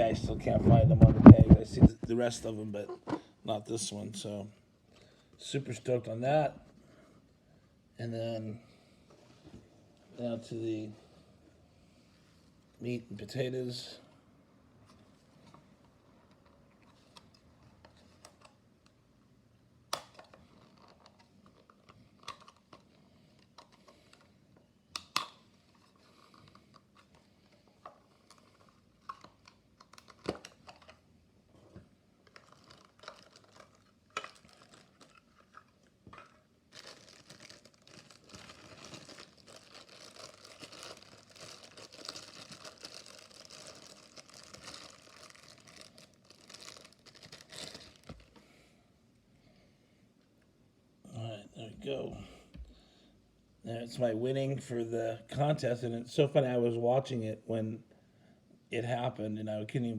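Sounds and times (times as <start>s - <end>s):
wrapping crinkling and tearing: 20.0s - 24.3s, 25.2s - 31.0s, 32.2s - 48.4s.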